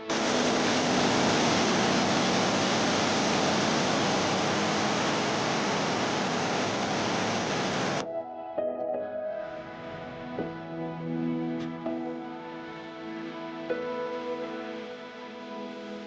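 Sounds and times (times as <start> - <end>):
loud rushing noise: 0.0 - 8.0.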